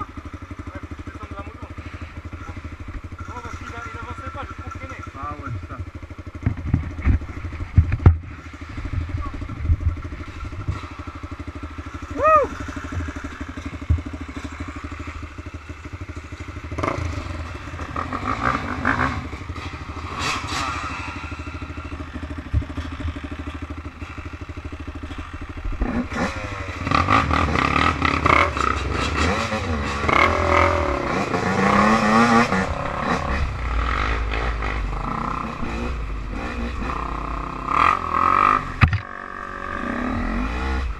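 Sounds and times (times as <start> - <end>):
off-road engines revving: 0.0 - 40.9
sharp knocks and rattles: 2.4 - 11.1, 22.0 - 24.1, 38.8 - 39.1.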